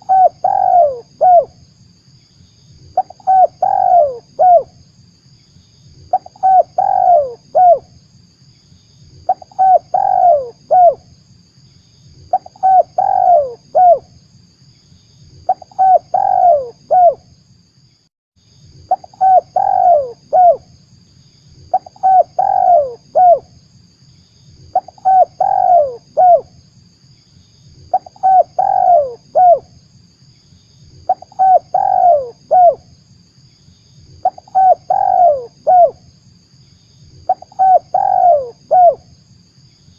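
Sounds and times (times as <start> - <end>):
dove cooing: 0.0 - 1.5, 3.0 - 4.7, 6.1 - 7.9, 9.3 - 11.0, 12.3 - 14.1, 15.5 - 17.2, 18.9 - 20.6, 21.7 - 23.5, 24.7 - 26.5, 27.9 - 29.7, 31.1 - 32.8, 34.2 - 36.0, 37.3 - 39.0.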